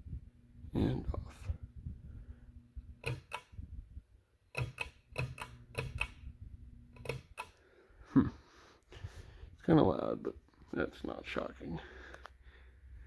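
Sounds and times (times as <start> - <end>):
faint fan hum: 0.0 - 13.0
ceiling fan clicking: 2.8 - 3.7, 4.5 - 7.7.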